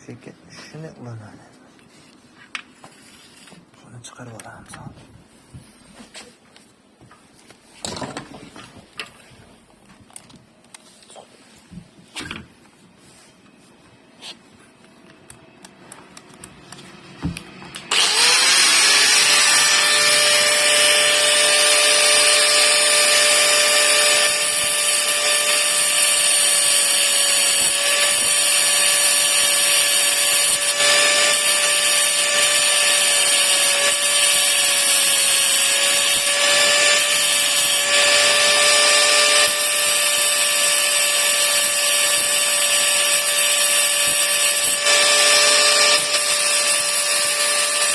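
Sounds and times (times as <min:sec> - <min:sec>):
power tool whining: 0:16.7 - 0:47.9.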